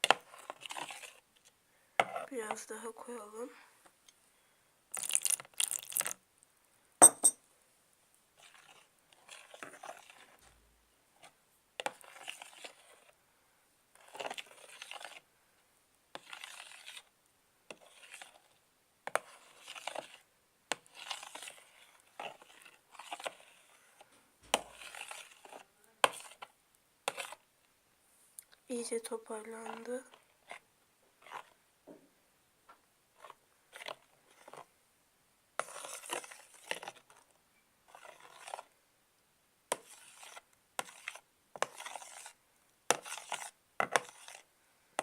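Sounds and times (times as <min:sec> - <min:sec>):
slime scraping in container: 0:00.0 - 0:01.2, 0:08.4 - 0:10.4, 0:11.2 - 0:13.2, 0:14.0 - 0:15.3, 0:16.1 - 0:17.1, 0:17.7 - 0:23.9, 0:24.5 - 0:26.5, 0:27.1 - 0:27.4, 0:29.1 - 0:30.6, 0:31.2 - 0:31.6, 0:33.2 - 0:34.7, 0:35.6 - 0:37.2, 0:37.9 - 0:38.7, 0:39.7 - 0:44.5.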